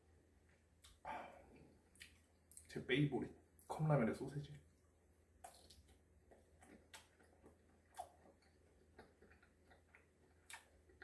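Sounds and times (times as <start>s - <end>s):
wet chewing clicks: 5.4s - 11.0s.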